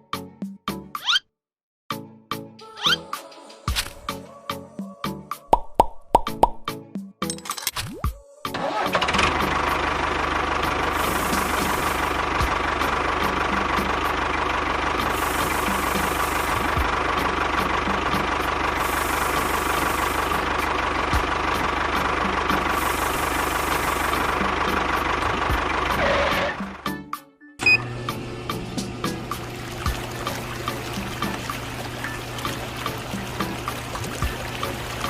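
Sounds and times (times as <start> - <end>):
engine running with knocking beat: 8.6 - 27.1, 28.0 - 35.0.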